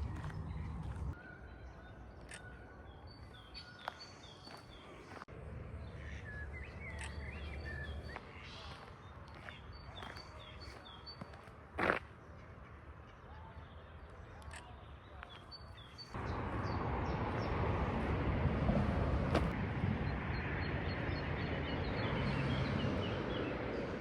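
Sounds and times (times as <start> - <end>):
low outdoor rumble: 0.0 - 1.2, 16.1 - 24.0
small birds chirping: 2.1 - 17.7.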